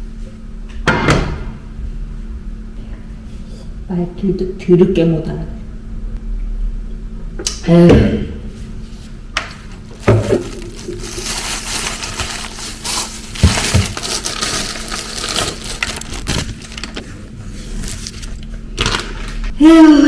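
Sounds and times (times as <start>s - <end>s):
crackly rustling: 9.6s - 19.5s.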